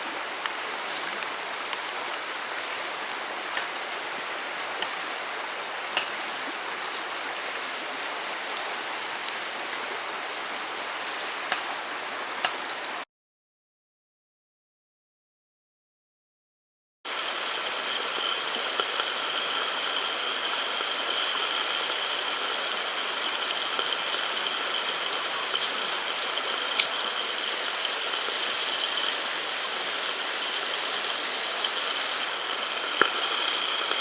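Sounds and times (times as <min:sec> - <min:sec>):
food sizzling in a pan: 0:04.5 - 0:07.2, 0:17.1 - 0:34.0.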